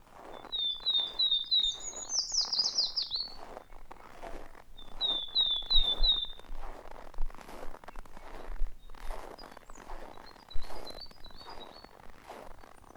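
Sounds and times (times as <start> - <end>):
footsteps crunching in snow: 0.0 - 12.9
songbird whistling: 0.3 - 3.4, 4.8 - 6.5, 8.8 - 12.0.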